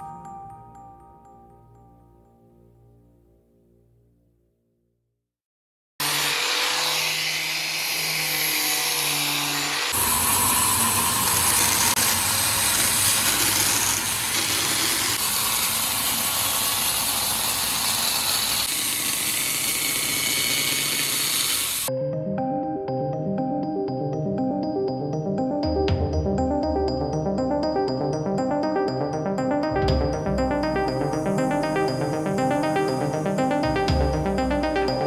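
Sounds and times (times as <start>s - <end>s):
power tool cutting wood: 6.0s - 21.9s.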